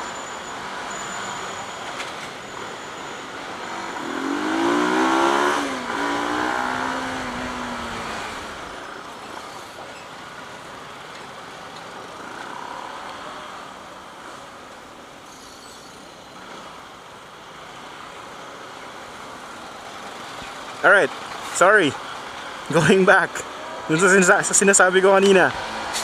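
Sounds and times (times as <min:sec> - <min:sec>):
traffic noise: 0:00.0 - 0:26.0
motorcycle engine revving: 0:03.6 - 0:08.9.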